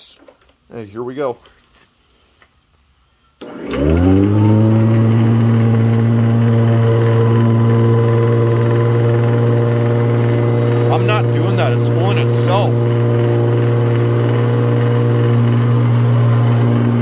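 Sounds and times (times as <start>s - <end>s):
vacuum cleaner motor whining: 3.4s - 17.0s.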